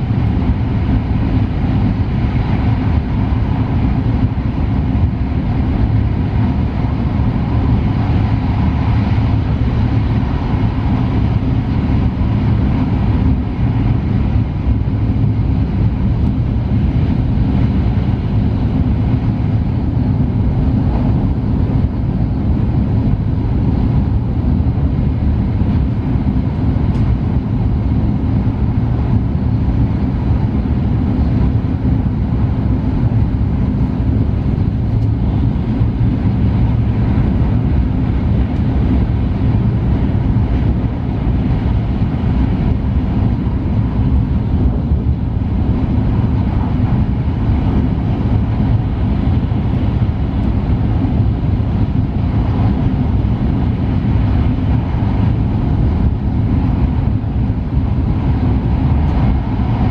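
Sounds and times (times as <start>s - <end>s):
train low rumble: 0.0s - 59.9s.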